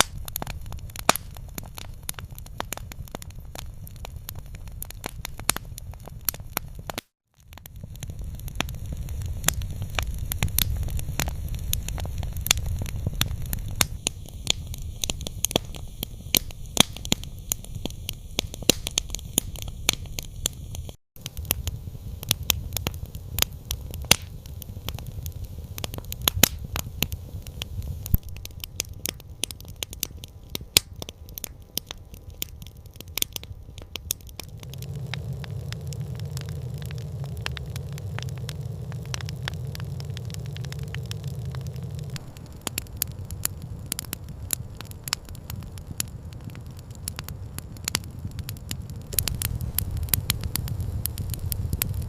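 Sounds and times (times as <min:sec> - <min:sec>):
campfire crackling: 0:00.0 - 0:52.0
low rumble: 0:34.2 - 0:46.5, 0:49.0 - 0:52.0.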